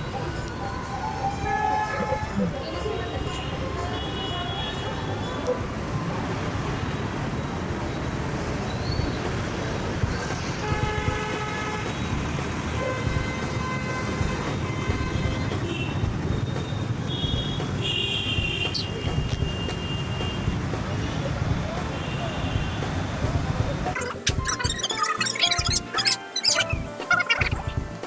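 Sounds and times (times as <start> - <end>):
road traffic rumble: 0.0 - 24.0
car horns honking: 1.2 - 5.3, 10.5 - 20.7.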